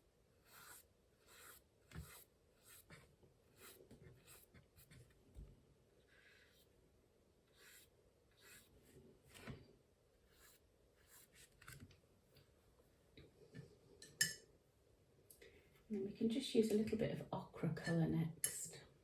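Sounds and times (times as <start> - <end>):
brush scratching on paper: 0.4 - 5.2, 6.0 - 6.8, 7.5 - 9.4, 10.2 - 11.8.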